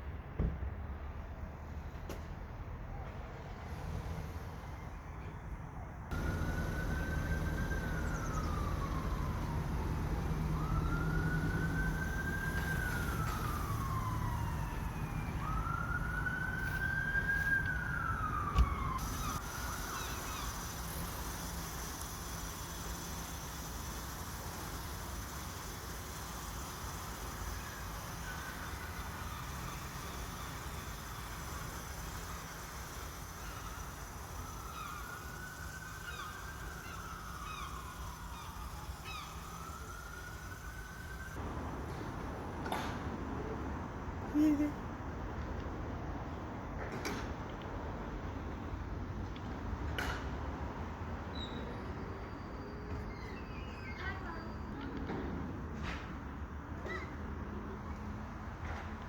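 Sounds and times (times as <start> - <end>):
low rumble of traffic: 0.0 - 59.0
emergency siren wailing: 6.1 - 20.5, 26.3 - 41.7.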